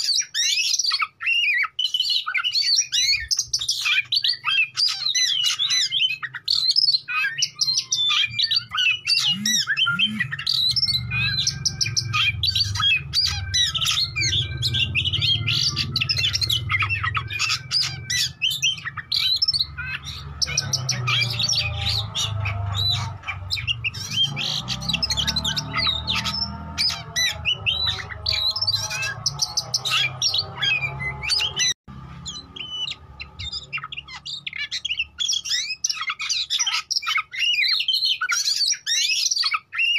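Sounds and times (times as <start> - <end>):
bird singing chirps and whistles: 0.0 - 39.9.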